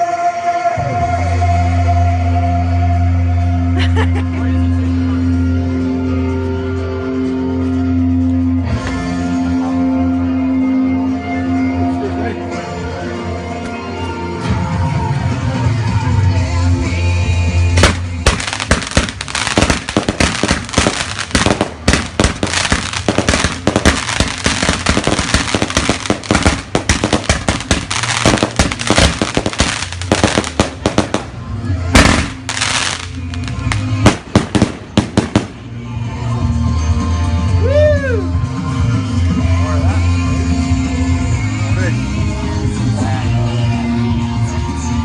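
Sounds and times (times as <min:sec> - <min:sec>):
music: 0:00.0 - 0:45.0
fireworks bangs and crackles: 0:17.6 - 0:36.3.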